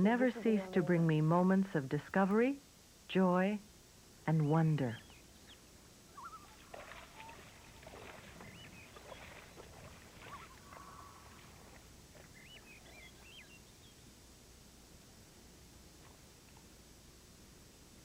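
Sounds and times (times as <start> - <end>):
birds chirping and whistling: 5.0 - 11.3, 12.2 - 14.0
rustling or splashing: 6.4 - 12.7.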